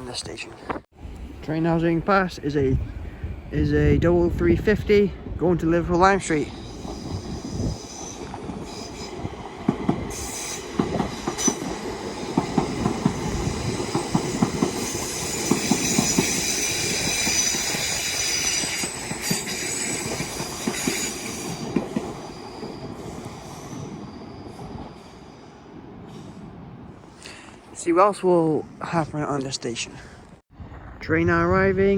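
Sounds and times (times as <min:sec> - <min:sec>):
high-pitched train whine: 0:06.1 - 0:09.3, 0:10.1 - 0:26.4.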